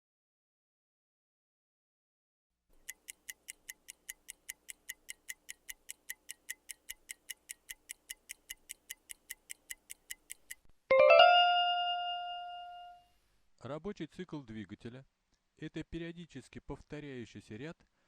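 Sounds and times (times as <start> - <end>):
fast even ticking: 2.8 - 10.7.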